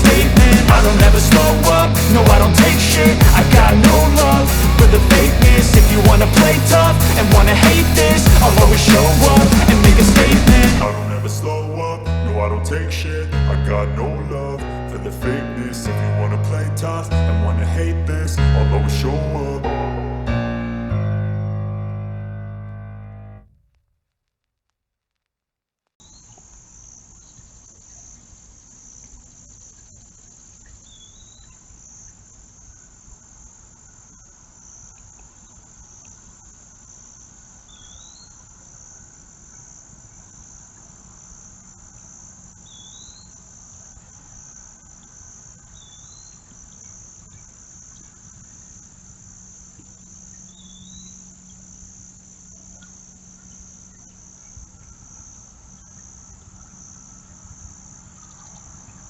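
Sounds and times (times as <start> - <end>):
short rising chirps: 0.0 - 12.0
crickets trilling: 0.0 - 12.8, 26.0 - 59.0
low rumble: 0.0 - 20.3.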